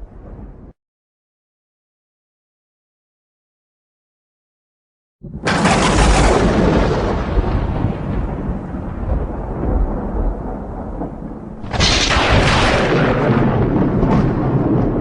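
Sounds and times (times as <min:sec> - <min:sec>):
thunder rumbling: 0:00.0 - 0:00.8, 0:05.2 - 0:15.0
sharp thunder clap: 0:05.2 - 0:15.0.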